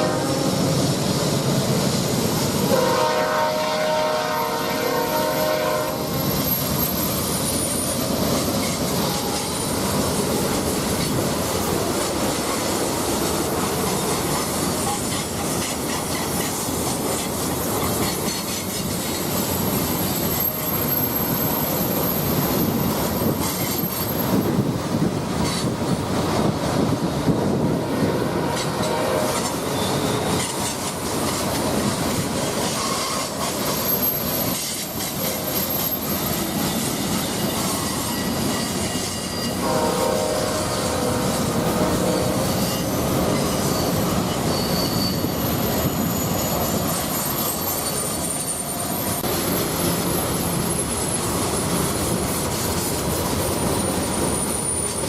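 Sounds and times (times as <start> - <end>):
train wheels rumbling on rails: 0.0 - 55.0
high wheel squeal: 4.4 - 11.2, 18.0 - 24.6, 28.6 - 31.5, 32.5 - 55.0.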